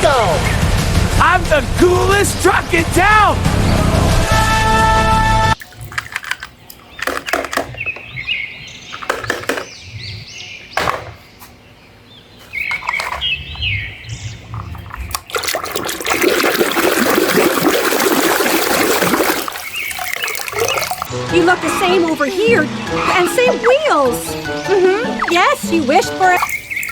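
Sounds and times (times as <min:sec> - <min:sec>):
water spraying: 0:14.6 - 0:23.1, 0:26.2 - 0:26.9.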